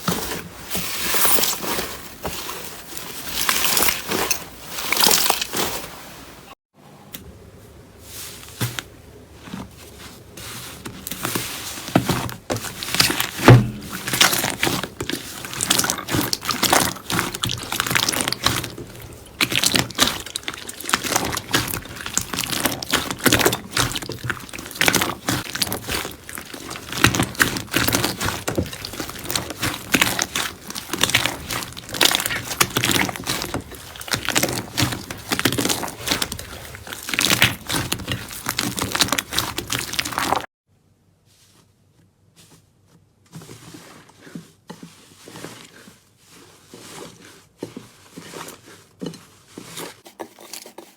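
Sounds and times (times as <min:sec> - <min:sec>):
loud thud: 0:13.4 - 0:14.0.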